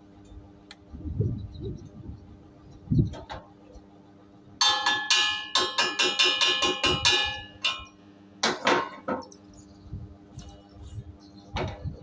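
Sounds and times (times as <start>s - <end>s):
hammer striking metal: 4.6s - 9.0s.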